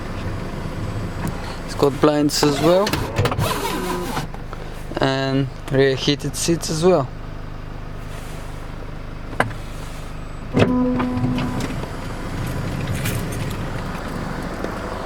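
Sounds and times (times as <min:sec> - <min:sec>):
car interior hum: 0:00.0 - 0:15.0
rough rumble: 0:08.0 - 0:15.0
electronic tone: 0:10.5 - 0:12.1.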